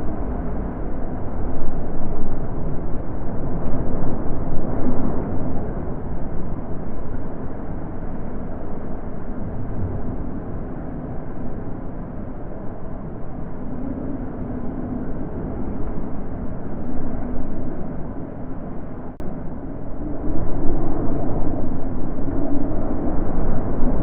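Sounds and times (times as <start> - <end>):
wind blowing: 0.0 - 24.0.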